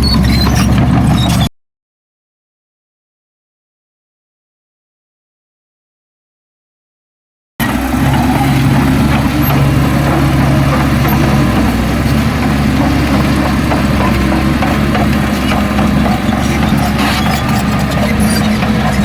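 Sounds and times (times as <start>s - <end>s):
heavy diesel engine running: 7.6s - 19.0s.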